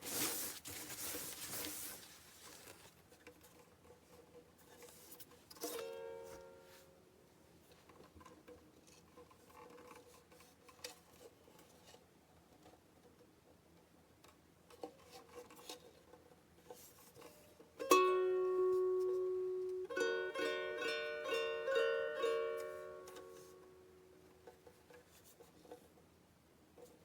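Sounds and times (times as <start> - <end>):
ukulele chord strummed: 5.7 - 7.2, 17.8 - 24.6
rhythmic ukulele strums: 17.8 - 24.6.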